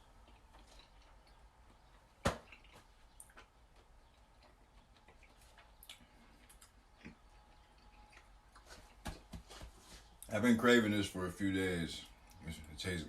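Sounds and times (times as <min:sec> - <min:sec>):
person chewing food: 0:00.0 - 0:10.3
mouth clicks and smacks: 0:00.1 - 0:09.3.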